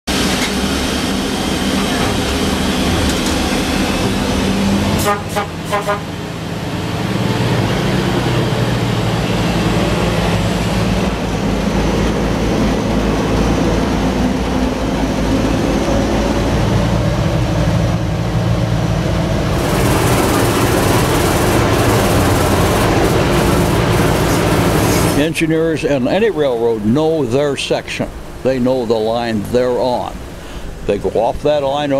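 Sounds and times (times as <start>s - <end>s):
locomotive engine rumbling: 0.1s - 31.9s
train horn toots: 5.0s - 6.3s.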